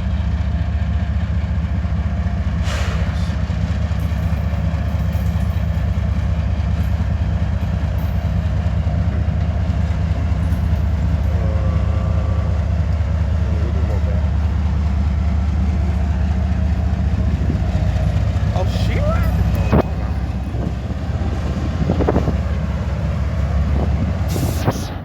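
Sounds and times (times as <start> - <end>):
engine idling: 0.0 - 25.0
brief hiss: 2.6 - 3.4, 24.3 - 25.0.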